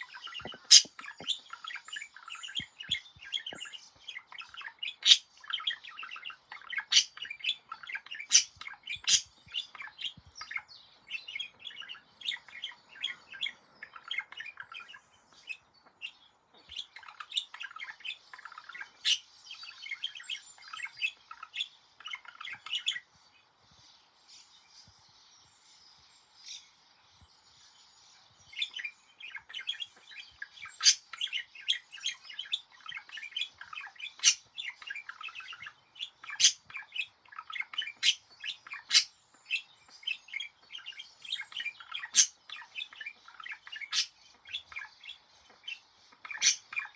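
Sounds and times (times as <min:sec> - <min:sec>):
budgerigar warbling: 0:00.5 - 0:00.9, 0:05.0 - 0:05.2, 0:06.9 - 0:07.1, 0:08.3 - 0:09.3, 0:36.4 - 0:36.6, 0:46.4 - 0:46.6.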